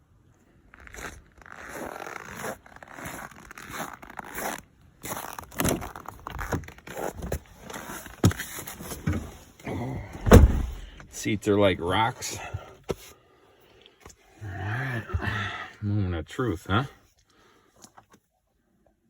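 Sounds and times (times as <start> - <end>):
sharp knocks: 10.2 - 10.9.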